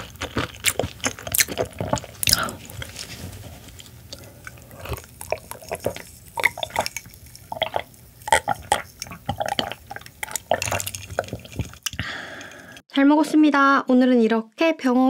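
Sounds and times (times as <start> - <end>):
chewing raw fish: 0.0 - 12.8
gulping water: 4.0 - 12.8
wet mouth clicks: 4.1 - 12.8.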